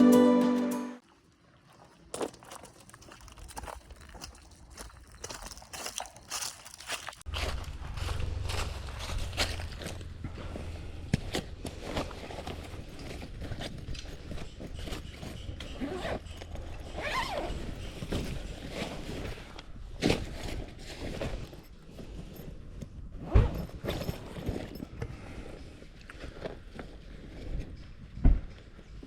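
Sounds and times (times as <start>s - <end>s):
footsteps: 1.7s - 19.2s
knocks and rustles: 7.2s - 19.4s.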